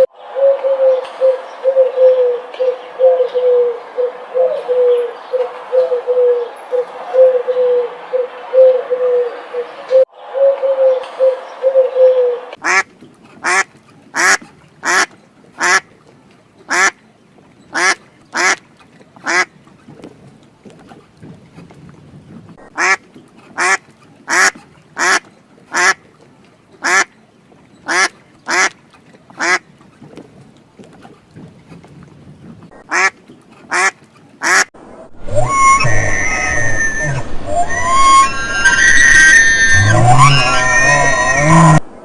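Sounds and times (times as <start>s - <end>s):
duck quacking: 12.6s - 15.9s, 16.7s - 17.0s, 17.7s - 18.6s, 19.2s - 19.5s, 22.6s - 26.0s, 26.8s - 27.1s, 27.8s - 29.6s, 32.7s - 34.7s.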